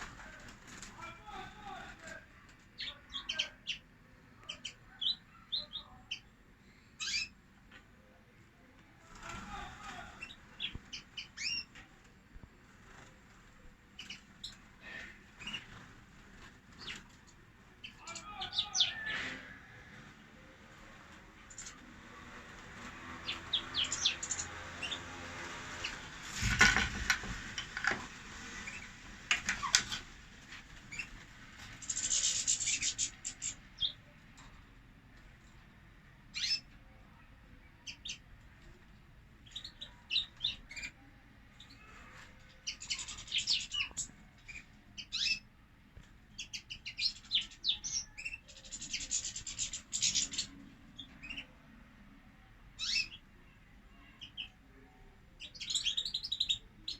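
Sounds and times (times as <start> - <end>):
finches chirping: 7.0 - 7.4, 10.2 - 11.8, 23.2 - 25.0, 31.8 - 34.0, 36.3 - 36.7, 42.7 - 45.4, 46.3 - 51.6, 52.8 - 53.2, 55.4 - 56.9.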